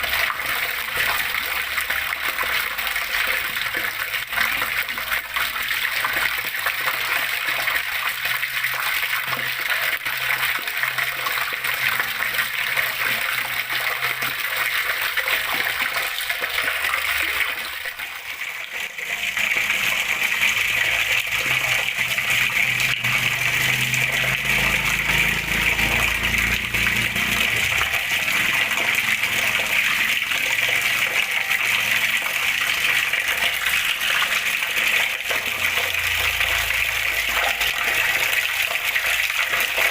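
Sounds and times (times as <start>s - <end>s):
water flowing and splashing: 0.0s - 39.9s.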